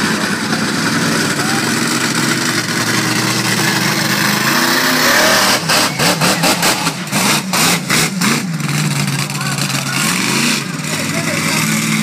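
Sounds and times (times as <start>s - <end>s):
monster truck engine running: 0.0s - 12.0s.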